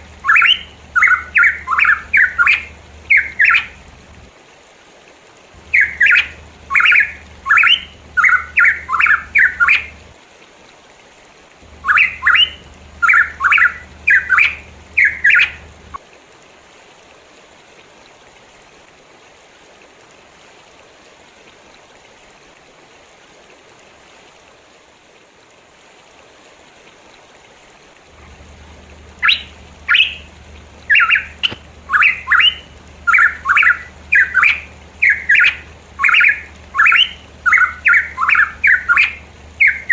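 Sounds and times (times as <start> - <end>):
faint steady hiss: 0.0 - 39.9
bird singing rapid sharp notes: 0.2 - 3.8, 5.6 - 10.0, 11.8 - 16.0, 28.2 - 39.9.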